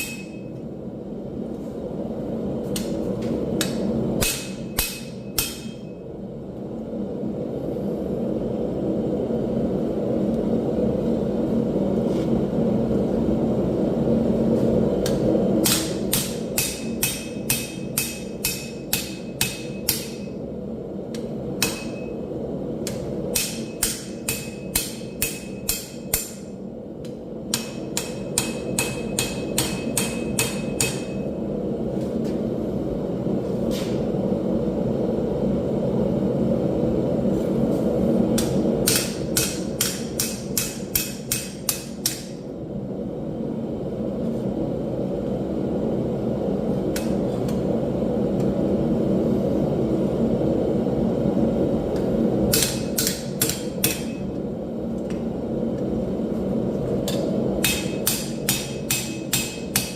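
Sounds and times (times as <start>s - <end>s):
hammer striking steel on anvil: 0.0s - 0.6s, 3.6s - 6.0s, 15.0s - 20.4s, 21.1s - 22.2s, 22.8s - 26.6s, 27.5s - 31.3s, 38.4s - 42.4s, 52.5s - 54.4s, 57.0s - 59.9s.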